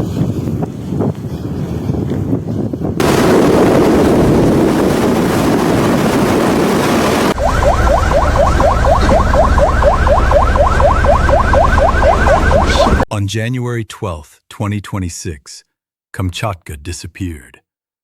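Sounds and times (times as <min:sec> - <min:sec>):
wind blowing on microphone: 0:00.0 - 0:09.3
rising electronic chirp: 0:07.4 - 0:13.0.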